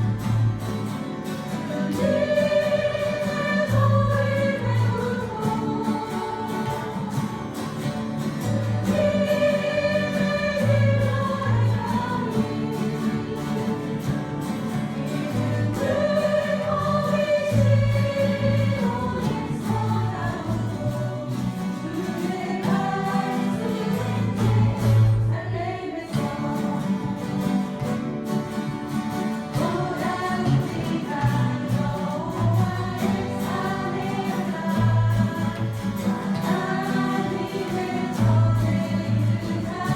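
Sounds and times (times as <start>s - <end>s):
group of voices singing: 0.0s - 39.9s
guitar ensemble playing: 0.0s - 39.9s.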